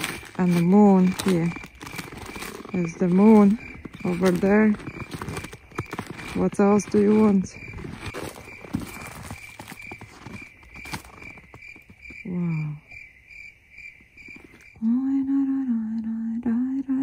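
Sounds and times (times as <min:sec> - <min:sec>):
voice singing long held notes: 0:14.8 - 0:17.0.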